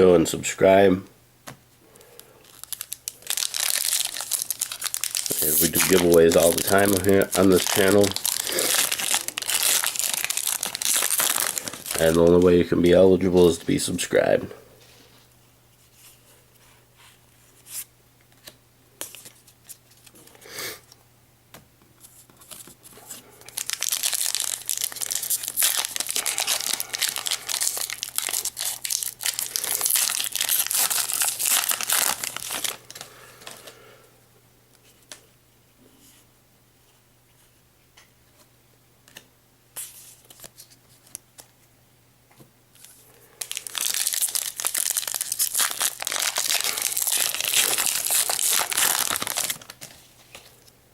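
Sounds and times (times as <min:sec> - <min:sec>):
foil wrappers tearing and crinkling: 0:02.4 - 0:12.6, 0:23.4 - 0:33.6, 0:42.8 - 0:50.6.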